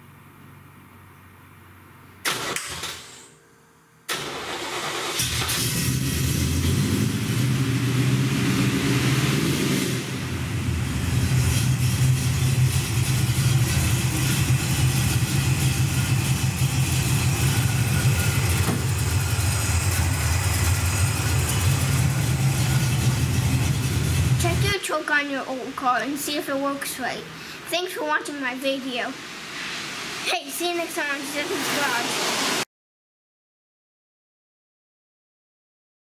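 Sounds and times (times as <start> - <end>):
car engine running: 4.2 - 24.7.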